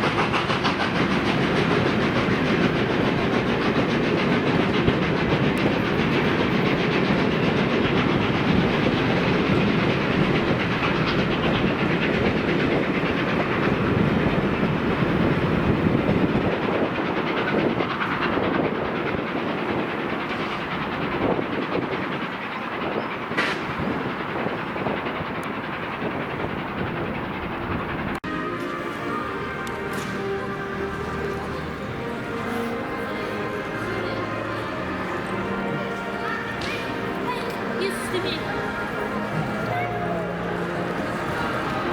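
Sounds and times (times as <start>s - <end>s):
train wheels clicking over rail joints: 0.0s - 41.9s.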